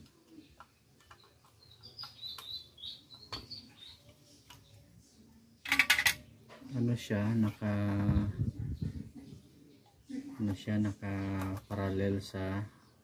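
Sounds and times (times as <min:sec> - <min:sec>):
small bird chirping: 0:00.1 - 0:05.5.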